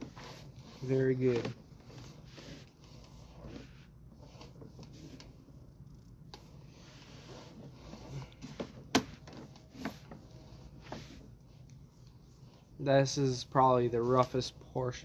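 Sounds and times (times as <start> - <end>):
cable rubbing: 0.0 - 5.4.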